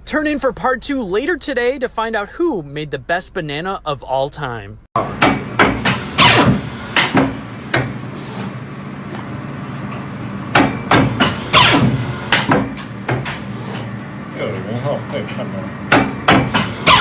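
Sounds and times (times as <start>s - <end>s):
steady low hum: 0.0s - 17.0s
sharp knocks: 5.0s - 8.0s, 10.5s - 13.5s, 15.9s - 17.0s.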